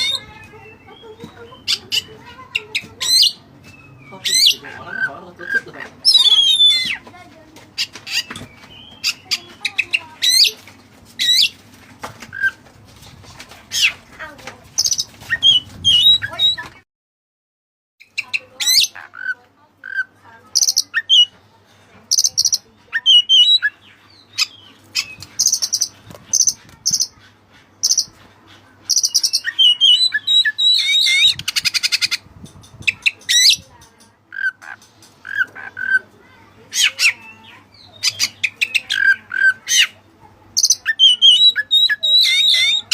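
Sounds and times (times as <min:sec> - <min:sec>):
harsh rattling bird call: 0:28.9 - 0:36.1, 0:40.6 - 0:42.9.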